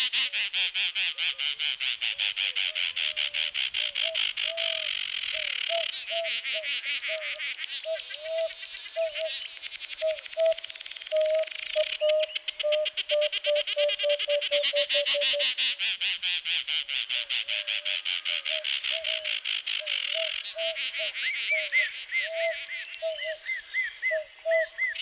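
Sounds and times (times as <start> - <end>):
bird whistling: 10.0 - 15.2.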